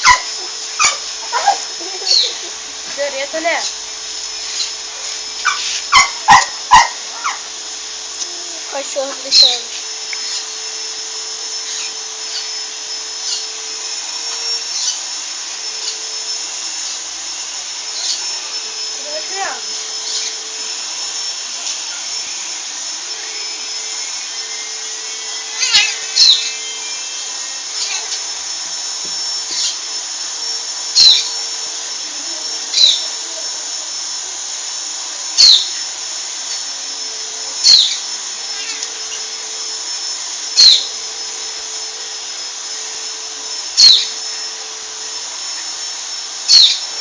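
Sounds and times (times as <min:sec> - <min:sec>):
dog yelping: 0:00.0 - 0:02.6, 0:05.4 - 0:07.5
thin high whine: 0:00.0 - 0:47.0.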